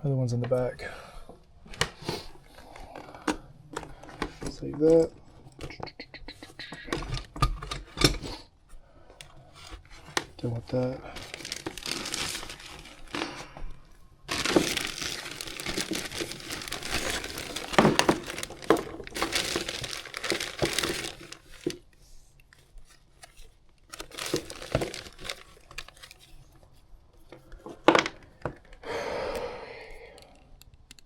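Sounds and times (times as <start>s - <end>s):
packaging crinkling and rustling: 1.4s - 8.6s, 9.2s - 28.8s
tools clicking and knocking: 2.8s - 8.4s.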